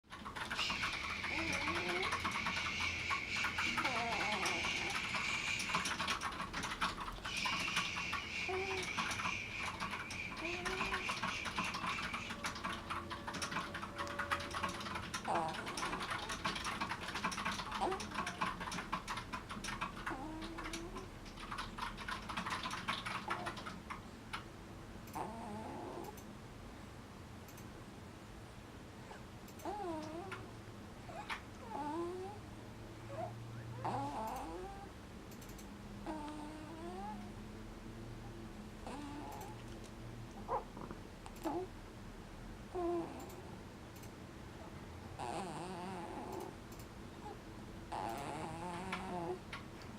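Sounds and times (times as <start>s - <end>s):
rapid clicking: 0.1s - 24.5s
small squeaks: 0.3s - 18.8s
pet whistling while breathing: 7.3s - 12.5s
faint clicking: 35.3s - 35.7s, 43.1s - 44.2s, 45.3s - 47.0s.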